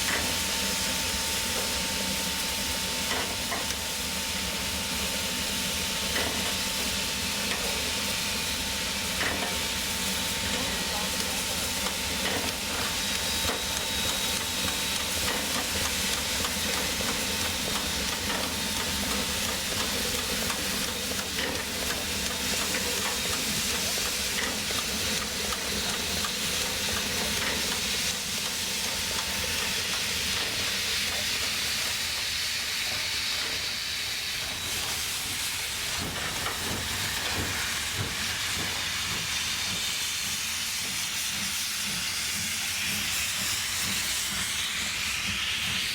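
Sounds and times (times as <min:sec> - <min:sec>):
steam locomotive hissing: 0:00.0 - 0:45.9.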